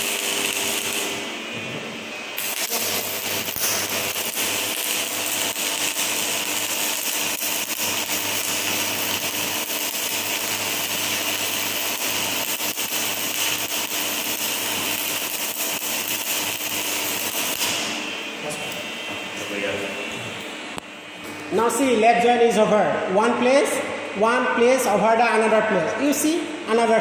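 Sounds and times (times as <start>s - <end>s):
welding arc crackling: 0.0s - 1.5s, 2.3s - 19.5s.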